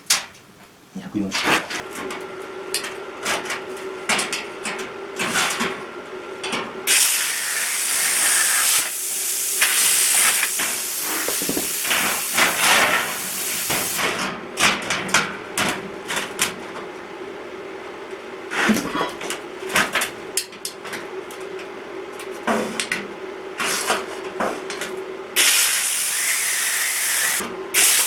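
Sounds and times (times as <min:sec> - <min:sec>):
plasma cutter hissing: 0:06.9 - 0:14.0, 0:25.4 - 0:28.0.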